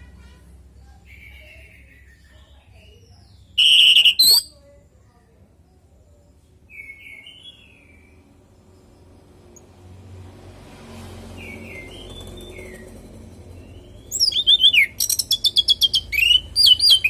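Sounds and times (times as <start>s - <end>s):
thrush sharp call: 3.6s - 4.5s.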